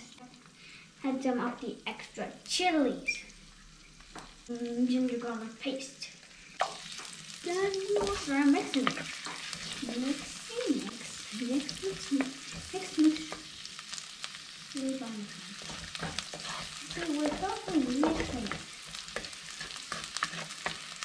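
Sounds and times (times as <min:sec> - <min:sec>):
spices sizzling in hot oil: 0:00.0 - 0:21.0
wooden spatula scraping clay pot: 0:15.6 - 0:21.0.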